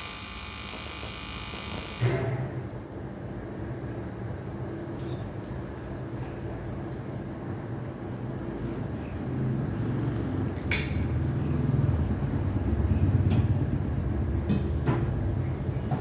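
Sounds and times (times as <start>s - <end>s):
welding arc buzzing hum: 0.0s - 2.6s.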